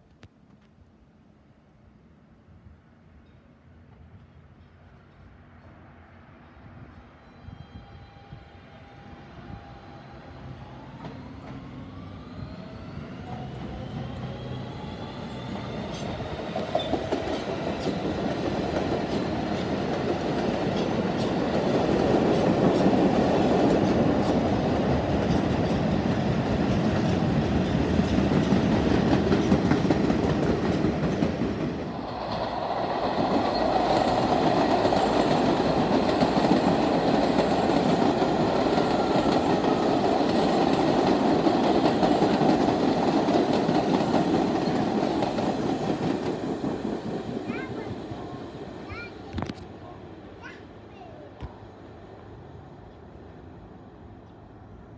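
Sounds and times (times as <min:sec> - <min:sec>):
subway train motor whine: 0:06.7 - 0:49.5
train wheels rumbling and clicking: 0:12.5 - 0:48.2.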